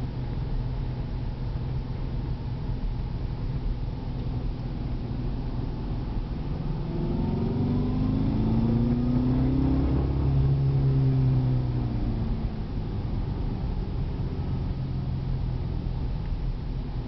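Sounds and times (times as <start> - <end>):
road noise: 0.0 - 17.0
car engine accelerating: 4.2 - 17.0.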